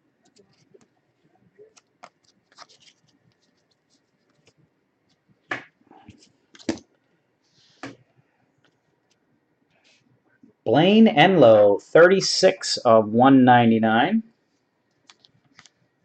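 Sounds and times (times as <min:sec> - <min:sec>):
cards scratching and sliding: 0:01.6 - 0:05.2.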